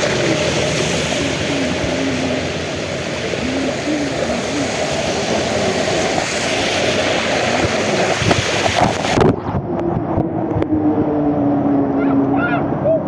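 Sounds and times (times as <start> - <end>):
heavy rain hissing: 0.0 - 9.3
steady droning tone: 0.0 - 13.0.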